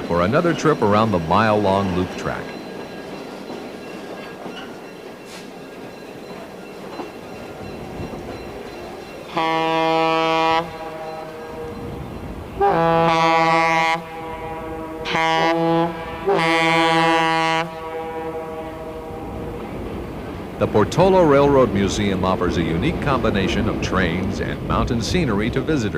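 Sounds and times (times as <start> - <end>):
running train rumble: 0.0 - 25.9
locomotive air horn blasts: 9.3 - 12.0, 12.6 - 19.6.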